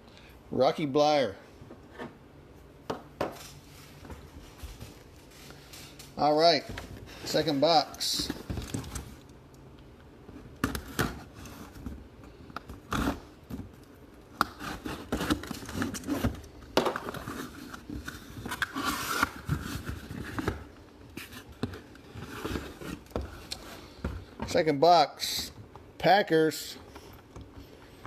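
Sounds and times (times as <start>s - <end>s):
cardboard and plastic scraping: 14.5s - 24.3s.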